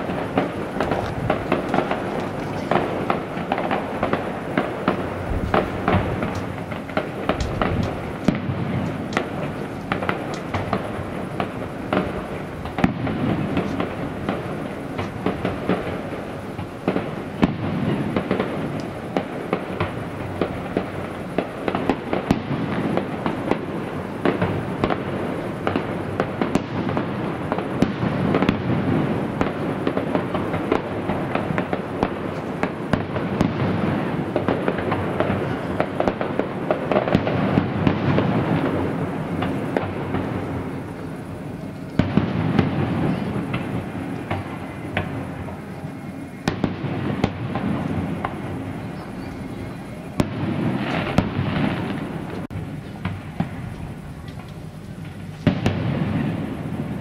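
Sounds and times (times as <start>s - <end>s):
rumbling wash: 0.0s - 21.7s
fireworks bangs and crackling: 0.0s - 57.0s.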